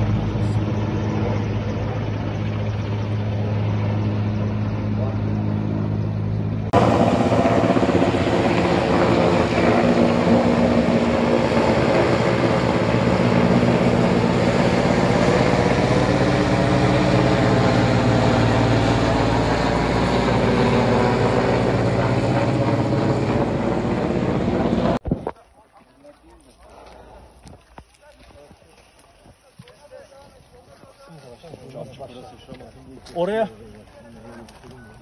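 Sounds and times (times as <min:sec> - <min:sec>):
helicopter drone: 0:00.0 - 0:25.0.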